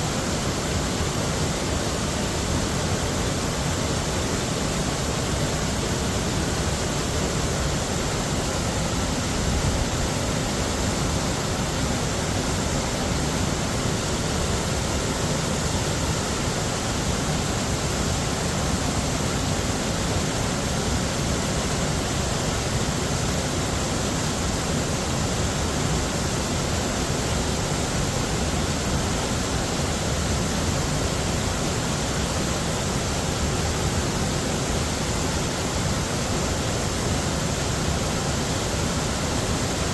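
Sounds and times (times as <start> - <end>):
heavy waterfall rushing: 0.0 - 39.9.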